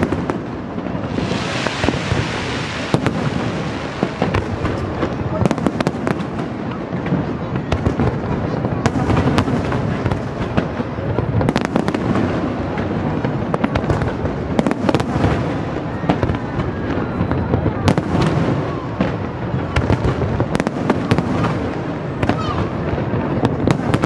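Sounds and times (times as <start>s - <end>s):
fireworks shells bursting: 0.8s - 5.3s.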